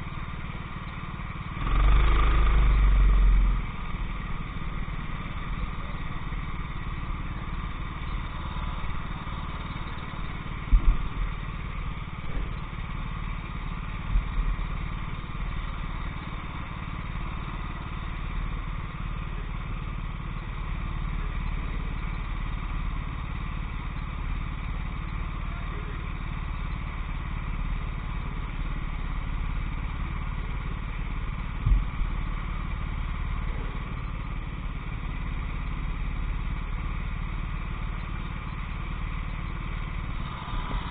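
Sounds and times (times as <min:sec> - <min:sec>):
racing kart engine running: 0:00.0 - 0:40.9.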